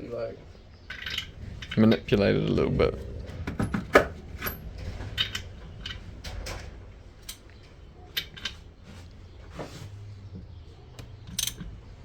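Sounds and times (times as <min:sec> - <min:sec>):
low steady hum: 0:00.0 - 0:12.0
metallic clicks of hand tools: 0:11.0 - 0:11.7.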